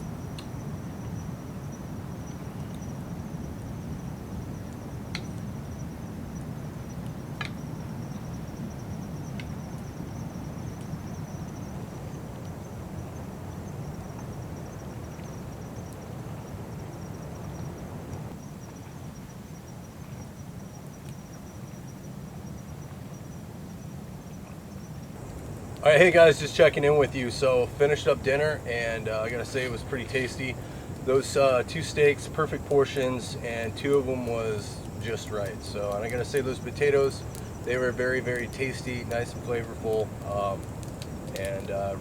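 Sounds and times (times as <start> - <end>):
crickets trilling: 0.0 - 42.0
low outdoor rumble: 24.0 - 42.0.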